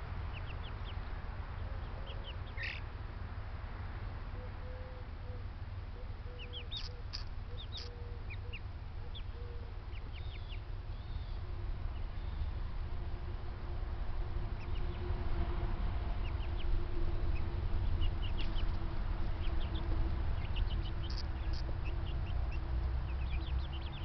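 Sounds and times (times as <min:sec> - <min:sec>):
steady low rumble: 0:00.0 - 0:24.0
ducks and fowl calling: 0:01.6 - 0:02.8, 0:06.0 - 0:10.2, 0:16.2 - 0:24.0.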